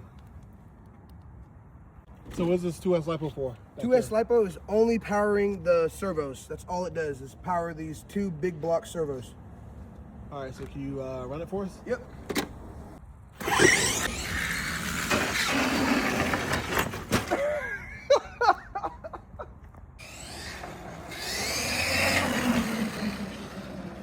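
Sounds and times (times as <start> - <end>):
tyre and drivetrain noise: 8.8 - 17.6, 19.5 - 24.0
electric motor whine: 13.4 - 16.9, 20.0 - 24.0.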